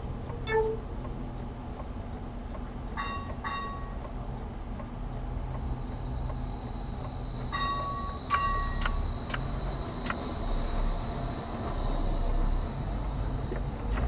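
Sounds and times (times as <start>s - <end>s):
engine and road rumble: 0.0s - 14.0s
electronic beeps: 0.4s - 0.9s
faint high whine: 5.6s - 12.7s.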